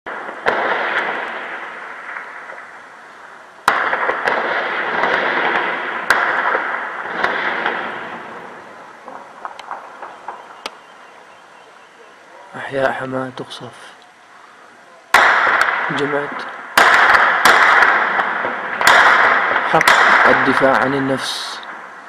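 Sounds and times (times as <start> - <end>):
faint cracks: 0.1 - 10.8
shell blasts with rolling echo: 0.1 - 12.0, 15.1 - 22.0.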